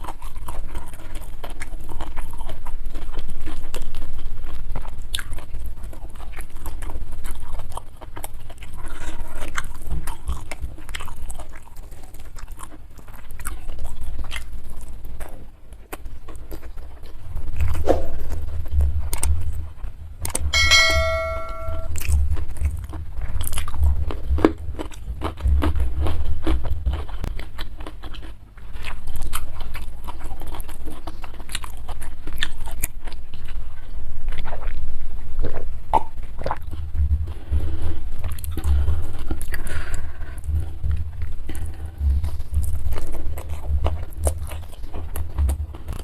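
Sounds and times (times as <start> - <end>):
chewing and crunching food: 0.0 - 20.6, 22.0 - 46.0
short ringing tone: 20.6 - 22.0.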